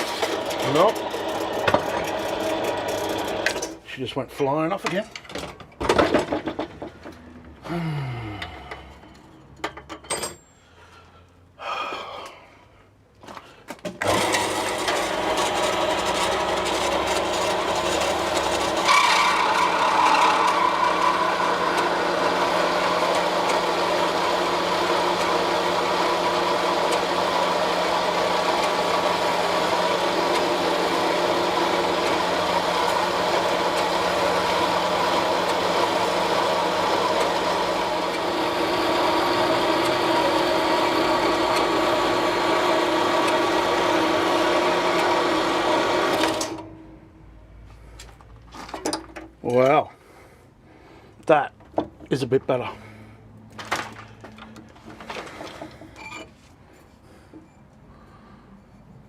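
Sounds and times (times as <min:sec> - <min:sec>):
band saw running: 0:00.0 - 0:03.8, 0:14.0 - 0:46.8
knocks and clatter: 0:04.8 - 0:07.2.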